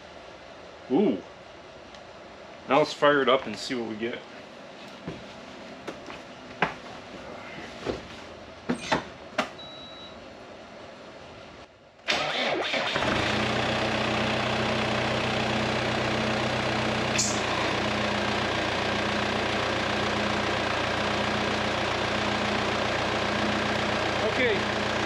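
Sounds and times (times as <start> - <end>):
tractor engine starting and idling: 12.0 - 25.0.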